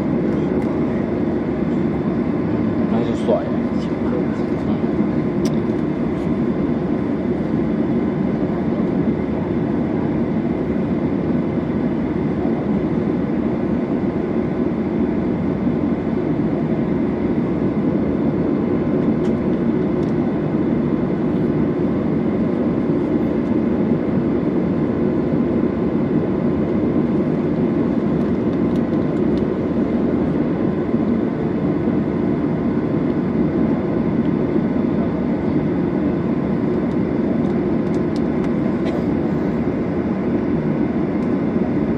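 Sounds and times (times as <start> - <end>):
airplane cabin engine rumble: 0.0 - 41.9
faint steady engine whine: 0.0 - 41.9.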